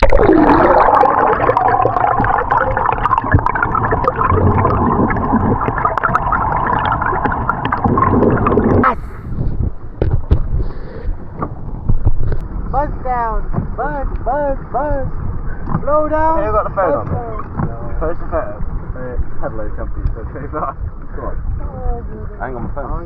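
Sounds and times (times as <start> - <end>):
clicks and splashy noise: 0.0 - 9.0
underwater gurgling and bubbling: 0.0 - 12.9.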